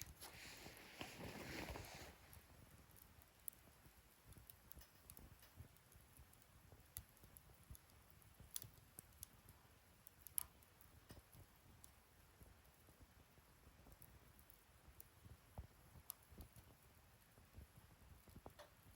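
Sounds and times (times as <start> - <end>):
wood fire crackling: 0.0 - 18.9.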